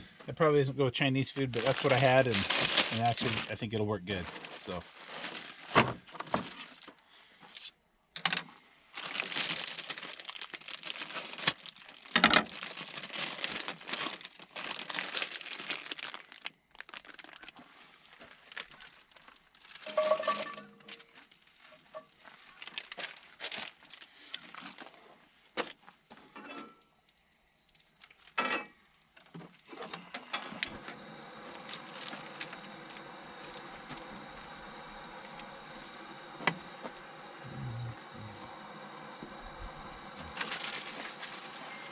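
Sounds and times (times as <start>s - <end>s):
pan and utensils clinking: 19.9s - 20.8s
food sizzling in a pan: 30.8s - 41.9s.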